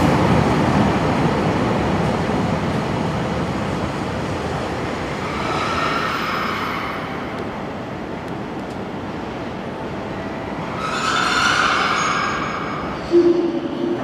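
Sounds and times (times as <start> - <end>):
train rumbling: 0.0 - 14.0
high squeal of train wheels: 5.1 - 7.4, 10.3 - 14.0.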